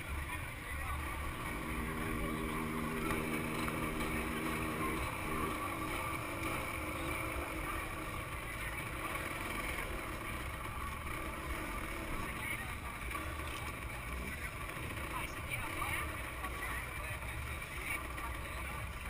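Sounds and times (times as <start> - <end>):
two-stroke motorcycle engine running: 0.0 - 19.0.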